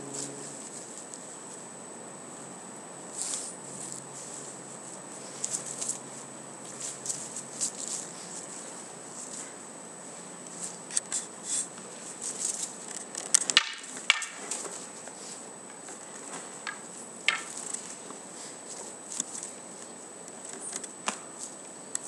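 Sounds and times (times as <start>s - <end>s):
steady hiss: 2.3s - 22.0s
wooden swords clacking: 13.2s - 14.7s, 16.6s - 17.7s.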